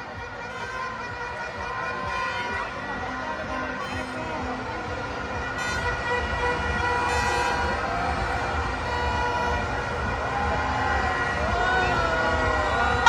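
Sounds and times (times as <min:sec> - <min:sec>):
horn-like tones: 0:00.0 - 0:13.0
siren-like wails: 0:06.5 - 0:13.0.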